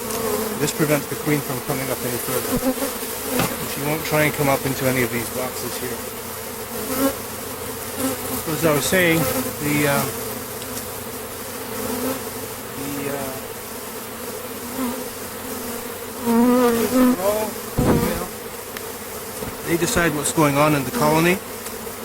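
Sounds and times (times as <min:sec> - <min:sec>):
bees humming: 0:00.0 - 0:22.0
brief thump: 0:03.3 - 0:03.7, 0:17.8 - 0:18.5.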